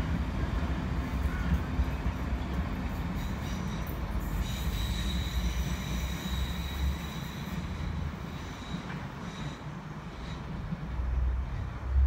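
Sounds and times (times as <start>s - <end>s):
steady low train rumble: 0.0s - 12.0s
train wheels squealing: 1.2s - 10.7s.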